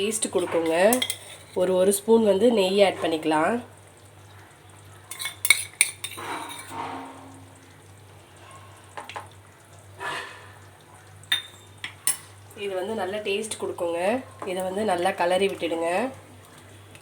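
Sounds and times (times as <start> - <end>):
spoon scraping pan: 0.0 - 2.0, 5.1 - 7.3
faint steady hum: 0.0 - 17.0
metal spoon clinking on pan: 0.2 - 1.6, 5.1 - 6.8, 11.3 - 12.4.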